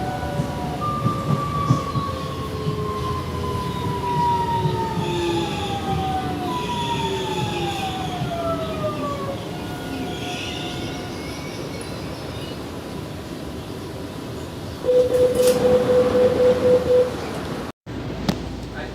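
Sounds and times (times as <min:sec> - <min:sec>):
train knocks: 0:00.0 - 0:09.2, 0:14.8 - 0:17.6
train rumbling on rails: 0:00.0 - 0:18.9.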